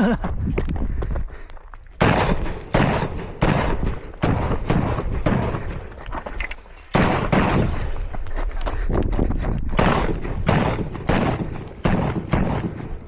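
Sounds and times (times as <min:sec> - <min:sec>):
rifle shots ringing: 0:02.0 - 0:08.2, 0:09.8 - 0:13.0.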